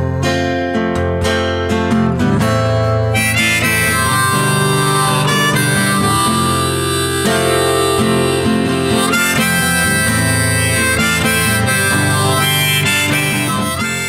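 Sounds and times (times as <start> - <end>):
guitar accompaniment: 0.0 - 14.0
harmonica sustained notes: 2.9 - 14.0.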